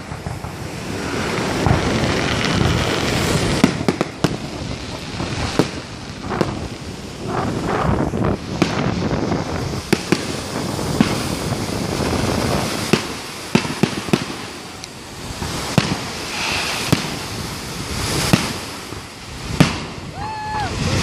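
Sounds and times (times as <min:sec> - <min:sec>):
firework shells bursting: 0:00.0 - 0:20.2.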